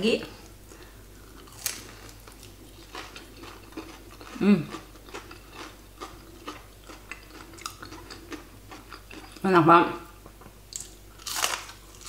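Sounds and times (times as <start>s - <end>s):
crunchy chewing: 1.2s - 9.4s, 10.7s - 12.0s
person humming mmm: 4.3s - 4.8s.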